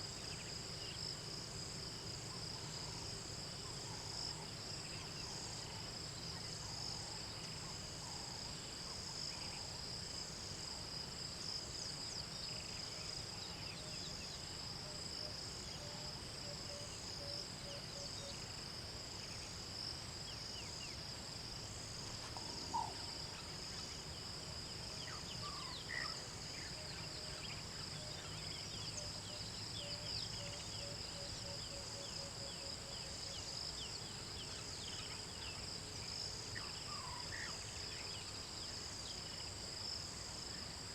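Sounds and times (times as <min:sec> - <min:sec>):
insects trilling: 0:20.2 - 0:40.9.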